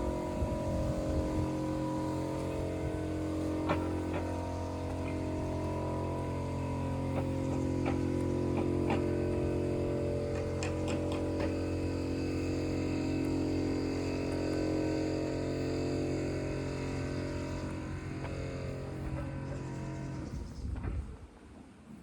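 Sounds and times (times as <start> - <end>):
steady motor hum: 0.0 - 22.0.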